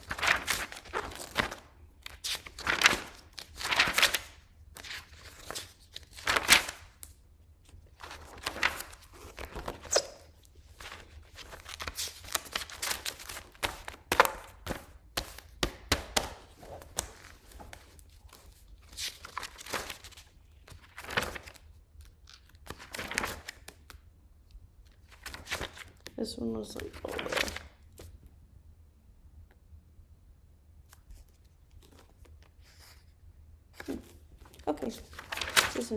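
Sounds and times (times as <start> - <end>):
paper rustling and crinkling: 0.0 - 15.5, 16.2 - 24.0, 24.9 - 26.2, 26.8 - 28.1, 30.9 - 33.1, 33.8 - 35.9.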